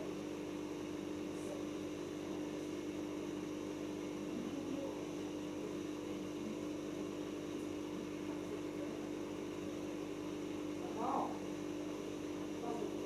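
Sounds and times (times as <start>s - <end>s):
washing machine spinning: 0.0s - 3.8s.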